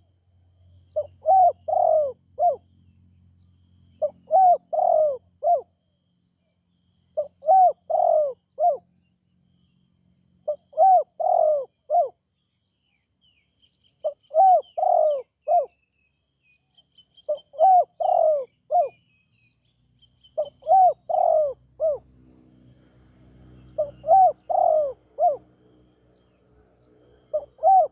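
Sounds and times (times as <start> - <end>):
dove cooing: 1.0 - 2.6, 4.0 - 5.7, 7.2 - 8.8, 10.5 - 12.2, 14.0 - 15.7, 17.3 - 19.0, 20.4 - 22.0, 23.8 - 25.5, 27.3 - 27.9
small bird chirps: 10.4 - 22.0, 23.5 - 25.4.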